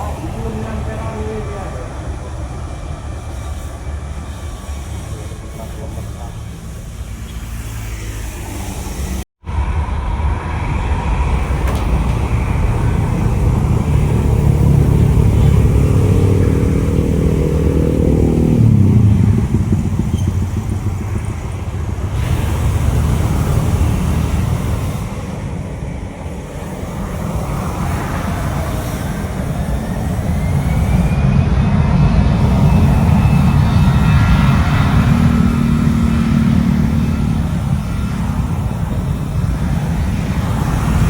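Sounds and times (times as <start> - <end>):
motor vehicle passing: 10.4 - 25.6, 31.9 - 41.0.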